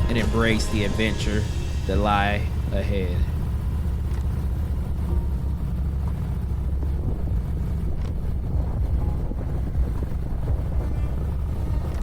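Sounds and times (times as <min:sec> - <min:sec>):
motorcycle engine rumbling: 0:00.0 - 0:12.0
wind noise on microphone: 0:06.8 - 0:12.0.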